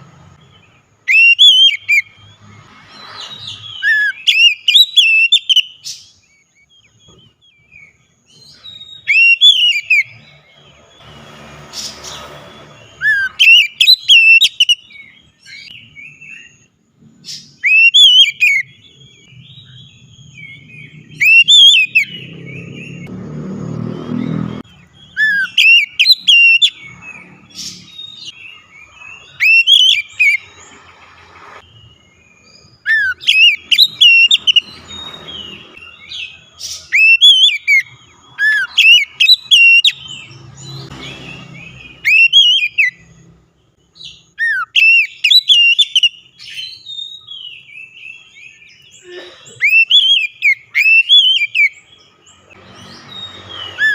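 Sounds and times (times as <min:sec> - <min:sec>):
bird singing whistled phrases: 0:01.0 - 0:02.3, 0:03.2 - 0:10.2, 0:13.0 - 0:16.7, 0:17.4 - 0:23.0, 0:25.0 - 0:26.9, 0:27.9 - 0:30.5, 0:31.8 - 0:40.1, 0:42.0 - 0:43.0, 0:44.0 - 0:49.0, 0:49.6 - 0:51.8.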